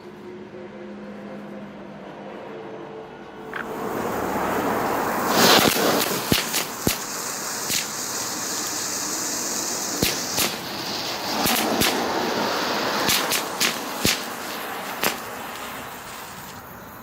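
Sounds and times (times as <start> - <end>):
firework hissing: 3.5 - 17.0
firework crackles and pops: 3.6 - 16.8.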